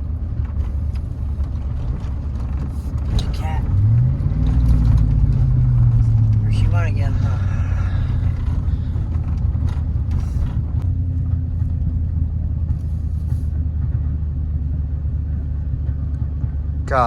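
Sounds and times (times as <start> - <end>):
knocks and rattles: 0.0 - 12.0
pickup engine droning: 0.0 - 17.0.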